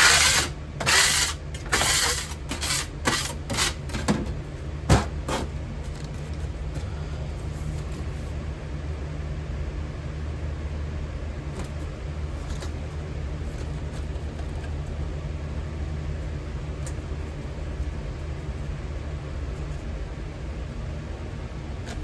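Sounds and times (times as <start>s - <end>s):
furnace rumbling: 0.0s - 14.8s.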